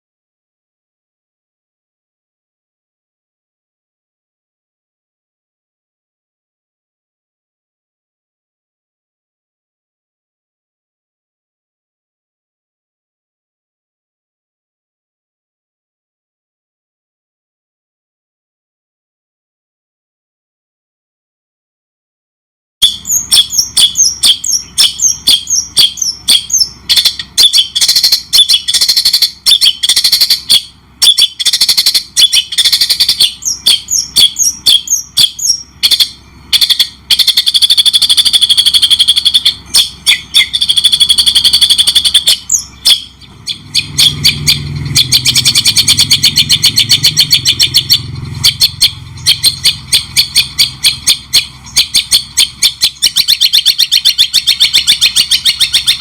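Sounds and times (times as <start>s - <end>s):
songbird chirps and trills: 22.8s - 56.0s
low hum: 22.9s - 56.0s.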